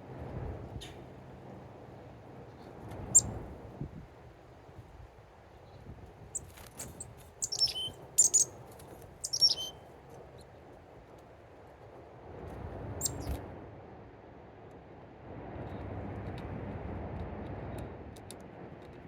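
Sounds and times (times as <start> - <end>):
faint low background rumble: 0.0 - 14.1
small birds chirping: 3.0 - 3.4, 6.3 - 9.8, 13.0 - 13.4.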